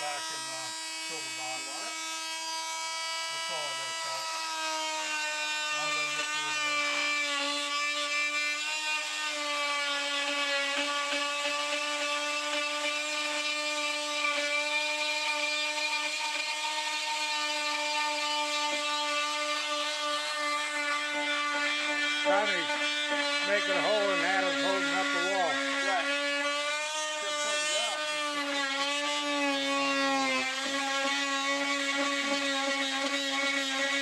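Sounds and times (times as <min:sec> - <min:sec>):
power tool motor whining: 0:00.0 - 0:34.0.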